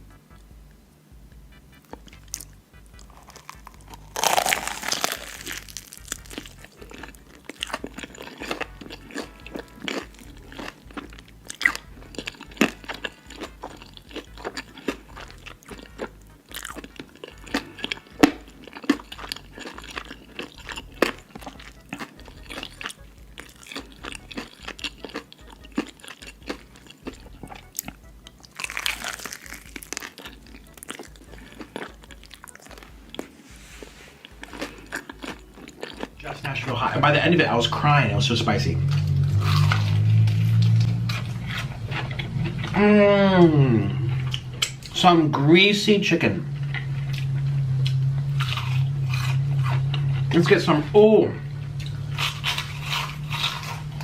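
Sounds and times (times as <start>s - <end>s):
quiet background music: 0.0s - 54.0s
crunching and chewing: 1.4s - 54.0s.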